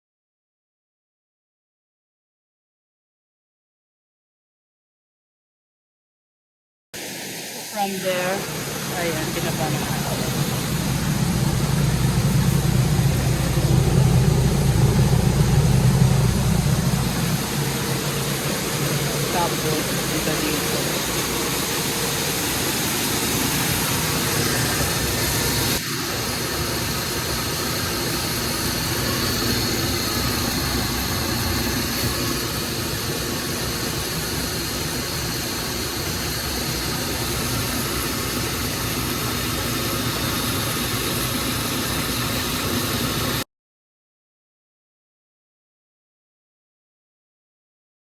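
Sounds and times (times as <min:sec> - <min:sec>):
grain dryer machinery humming: 0:07.8 - 0:43.4.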